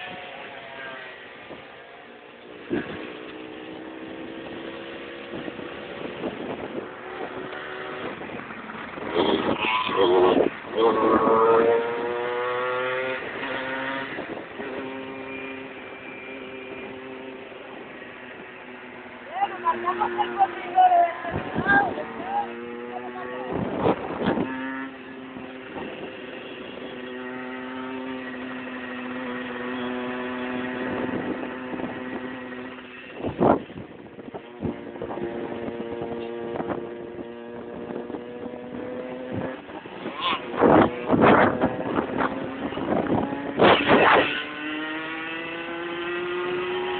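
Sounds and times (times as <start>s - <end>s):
motorcycle accelerating through gears: 0.0s - 46.9s
motorcycle engine running: 21.4s - 44.6s.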